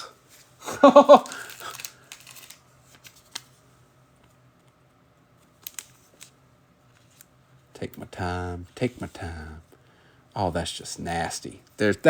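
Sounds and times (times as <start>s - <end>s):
trading card wrappers rustling: 0.3s - 3.6s, 5.4s - 9.2s.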